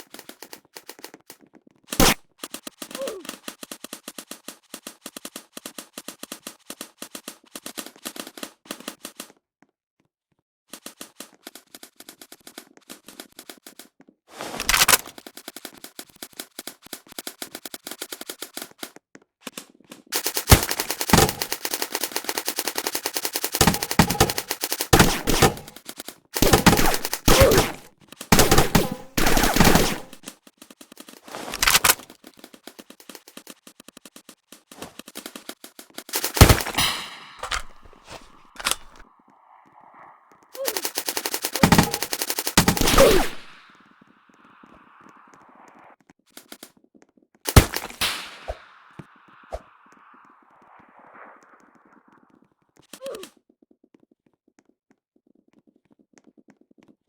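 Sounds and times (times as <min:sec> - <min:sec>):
airsoft guns firing bursts: 0:00.0 - 0:04.4, 0:14.4 - 0:18.7, 0:20.1 - 0:30.3, 0:31.3 - 0:32.1, 0:34.8 - 0:39.0, 0:40.6 - 0:43.9, 0:47.5 - 0:49.2.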